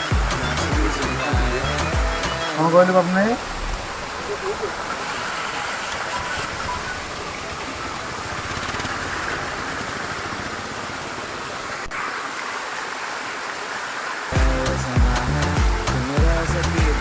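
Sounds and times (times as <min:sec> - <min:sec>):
music: 0:00.0 - 0:02.6, 0:14.4 - 0:17.0
waterfall rushing: 0:00.0 - 0:17.0.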